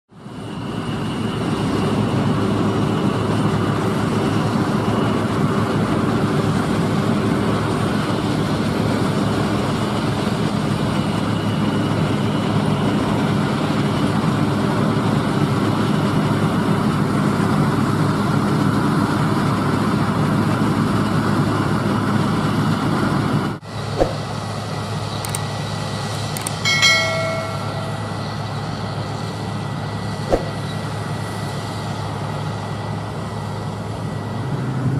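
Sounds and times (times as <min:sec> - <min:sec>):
combine harvester running: 0:00.1 - 0:34.9
machine drone with high whine: 0:23.7 - 0:34.9
clicks: 0:25.2 - 0:25.5, 0:26.1 - 0:28.1
short pitched tone: 0:26.4 - 0:28.8.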